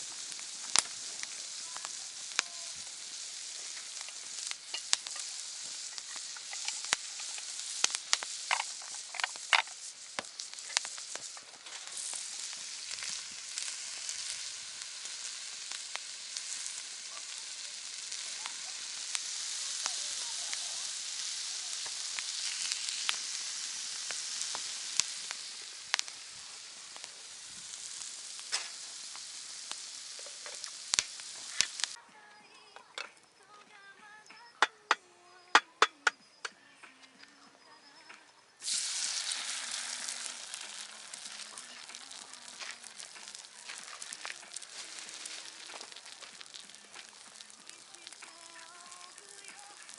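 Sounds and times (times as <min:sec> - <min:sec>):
campfire crackling and popping: 0:00.0 - 0:32.0, 0:38.6 - 0:49.9.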